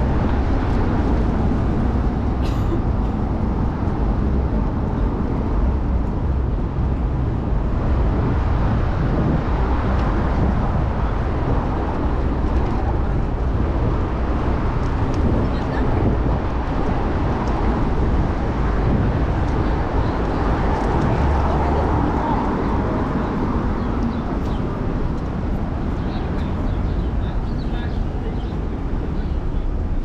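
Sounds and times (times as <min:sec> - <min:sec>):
wind and road noise: 0:00.0 - 0:30.0.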